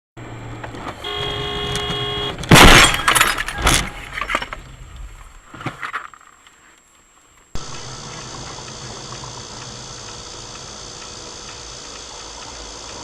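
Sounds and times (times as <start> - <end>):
car horn: 0.9 - 4.2
vehicle crash with breaking glass: 2.4 - 4.8
debris clattering: 2.4 - 6.4.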